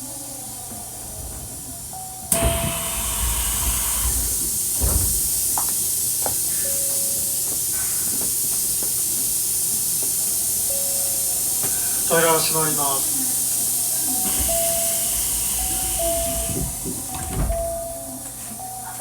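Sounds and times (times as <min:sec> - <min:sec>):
train doors opening with air hiss: 0:00.6 - 0:19.0
steady air hiss: 0:02.3 - 0:17.1.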